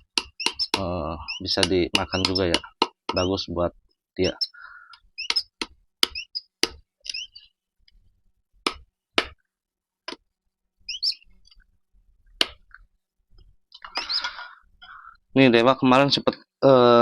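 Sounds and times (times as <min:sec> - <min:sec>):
faint high chirps: 0:04.2 - 0:07.6, 0:10.8 - 0:11.4, 0:13.7 - 0:15.2.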